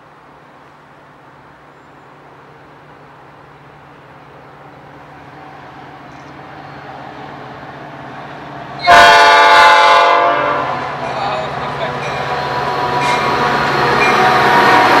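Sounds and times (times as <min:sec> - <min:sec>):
train approaching: 0:00.0 - 0:15.0
locomotive air horn: 0:08.8 - 0:15.0.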